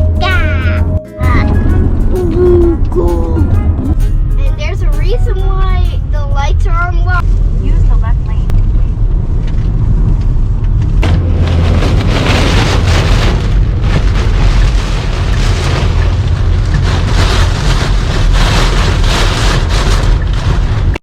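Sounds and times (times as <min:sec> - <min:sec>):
low road rumble: 0:00.0 - 0:21.0
heavy rain on a car: 0:07.2 - 0:21.0.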